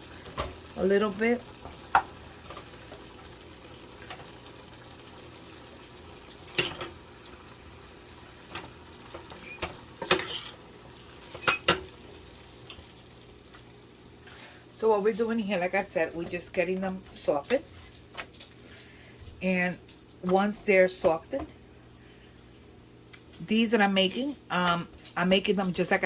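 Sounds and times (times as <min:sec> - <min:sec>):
meat sizzling in a frying pan: 0:00.0 - 0:14.6.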